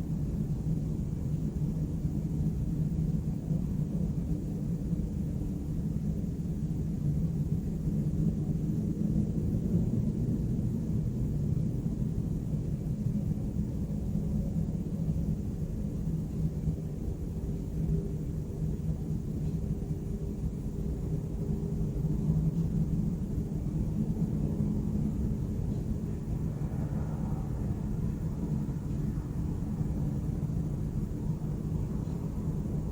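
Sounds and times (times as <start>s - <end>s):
faint higher hum: 0.0s - 32.9s
low rumble of city traffic: 0.0s - 32.9s.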